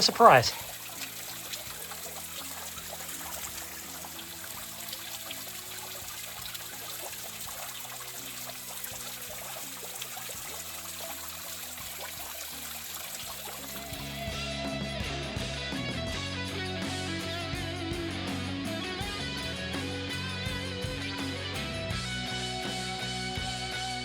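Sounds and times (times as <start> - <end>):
small waterfall running: 0.0 - 14.3.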